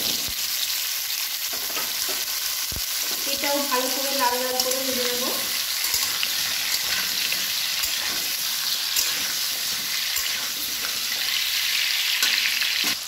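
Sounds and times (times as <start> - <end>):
pumpkin sizzling in hot oil: 0.0 - 13.0
metal spatula scraping and clicking: 5.5 - 13.0.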